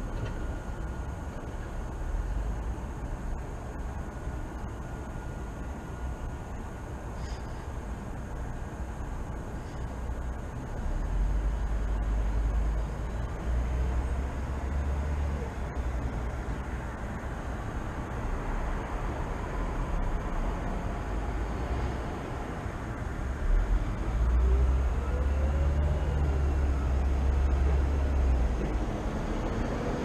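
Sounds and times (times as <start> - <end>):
traffic rumble: 0.0 - 30.0.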